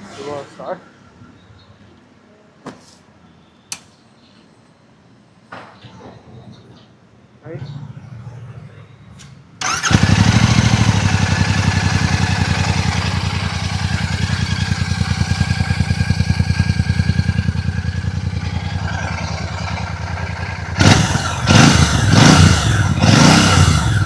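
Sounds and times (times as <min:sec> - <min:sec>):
motorcycle engine idling: 0:09.6 - 0:24.0.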